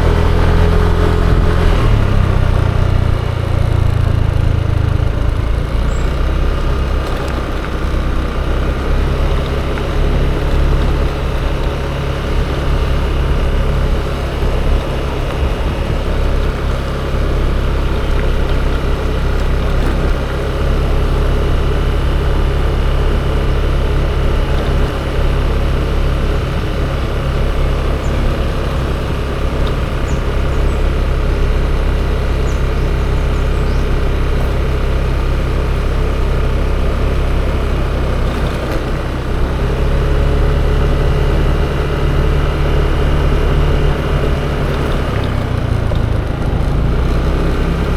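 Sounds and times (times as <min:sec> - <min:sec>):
road traffic: 0:00.0 - 0:47.9
scooter engine: 0:00.0 - 0:47.9
wind rumble on microphone: 0:08.8 - 0:35.7.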